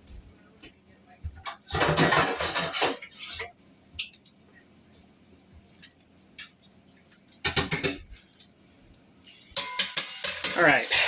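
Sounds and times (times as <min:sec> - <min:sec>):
cookware rattling clatter: 0:01.4 - 0:03.5.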